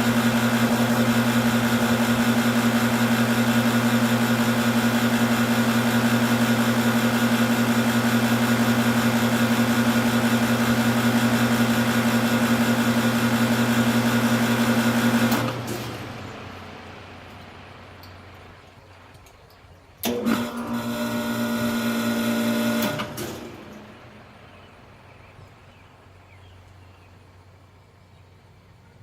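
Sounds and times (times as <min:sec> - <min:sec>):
motor winding down: 0:00.0 - 0:18.1, 0:20.0 - 0:24.5
electric compressor humming: 0:00.0 - 0:28.8.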